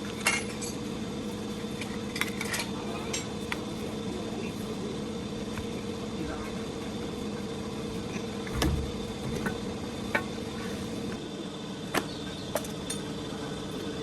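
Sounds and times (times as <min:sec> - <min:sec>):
steady hum: 0:00.0 - 0:14.0
sharp clicks and knocks: 0:08.4 - 0:10.4.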